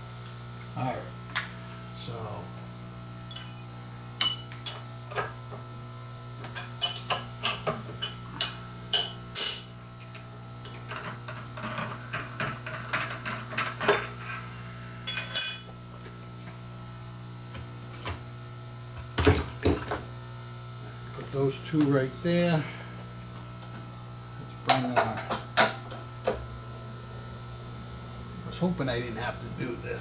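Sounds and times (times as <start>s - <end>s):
steady low hum: 0.0s - 30.0s
metal tools clinking: 19.2s - 20.1s.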